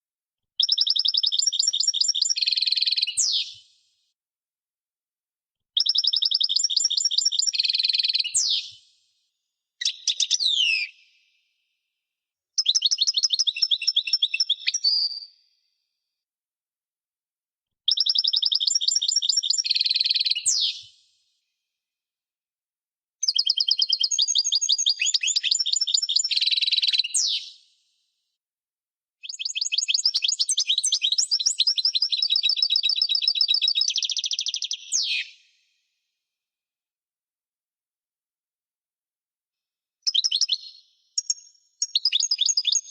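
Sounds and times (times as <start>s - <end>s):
goldfinch twittering song: 17.9s - 20.8s.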